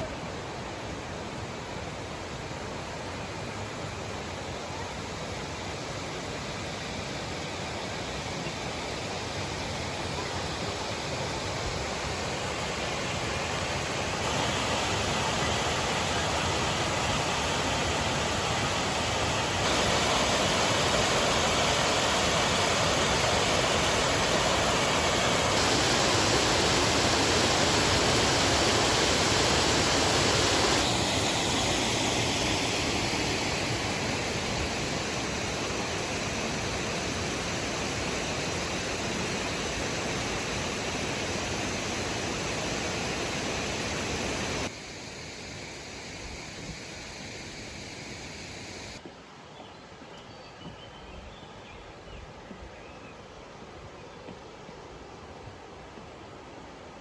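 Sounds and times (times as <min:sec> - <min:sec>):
waterfall roaring: 0:00.0 - 0:44.7.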